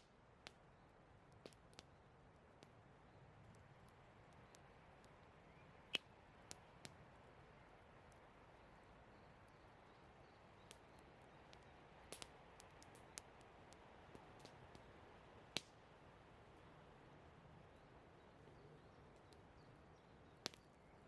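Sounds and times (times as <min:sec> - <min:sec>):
campfire crackling and popping: 0:00.0 - 0:08.9, 0:09.5 - 0:16.6, 0:20.3 - 0:20.8
low steady hiss: 0:00.0 - 0:21.0.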